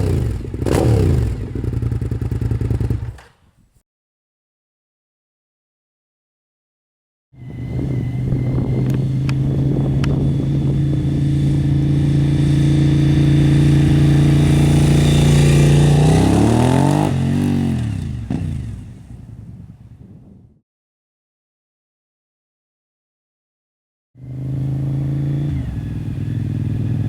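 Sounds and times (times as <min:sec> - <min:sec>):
motorcycle engine passing by: 0:00.0 - 0:03.4, 0:07.4 - 0:19.8, 0:24.2 - 0:27.0.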